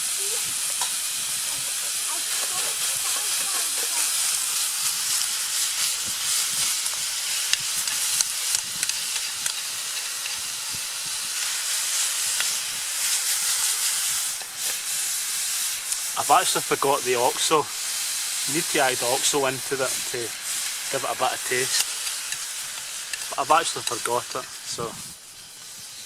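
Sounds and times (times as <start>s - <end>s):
meat sizzling in a pan: 0.0s - 26.0s
small crackling pops: 0.3s - 14.9s, 15.7s - 16.2s, 17.8s - 25.9s.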